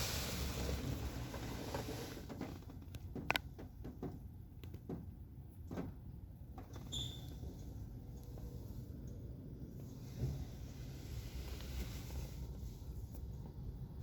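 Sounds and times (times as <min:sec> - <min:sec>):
water spray hissing on car: 0:00.0 - 0:02.1.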